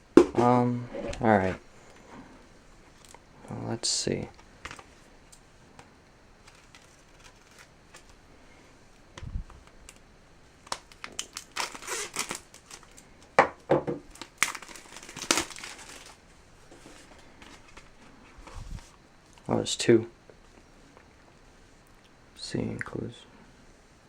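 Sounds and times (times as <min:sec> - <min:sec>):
packaging crinkling and tearing: 0:06.4 - 0:08.2, 0:10.6 - 0:13.3, 0:14.1 - 0:18.9.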